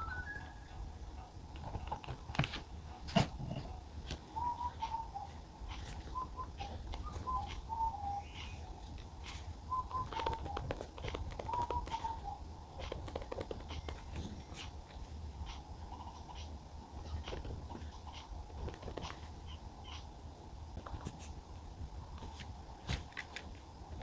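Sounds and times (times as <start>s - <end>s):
short chirping notes: 0.0s - 0.8s
steady low hum: 0.0s - 24.0s
pen and paper clicks and taps: 10.0s - 12.2s, 12.8s - 14.2s.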